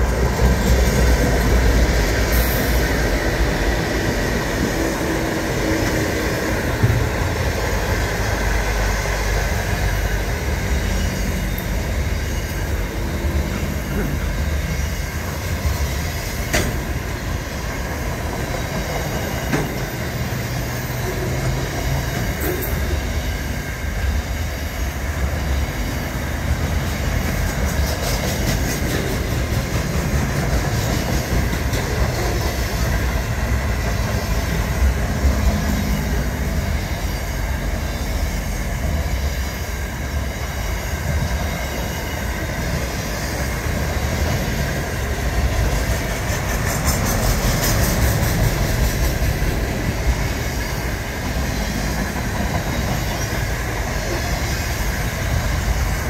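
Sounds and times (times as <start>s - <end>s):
freight train rumbling past: 0.0s - 56.0s
train wheels clacking: 0.0s - 56.0s.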